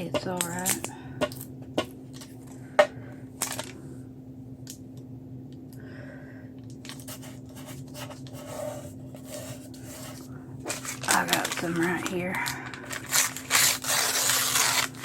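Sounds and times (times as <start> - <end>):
steady low hum: 0.0 - 15.0
paper rustling and scraping: 6.8 - 15.0.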